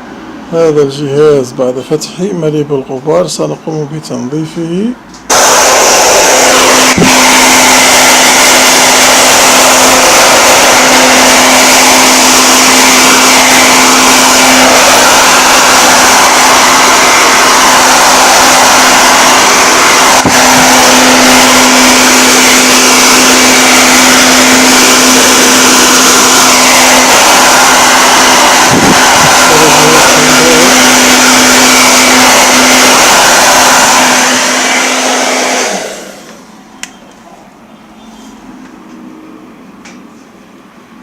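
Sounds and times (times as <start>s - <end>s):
electric air blower running: 5.2s - 36.7s.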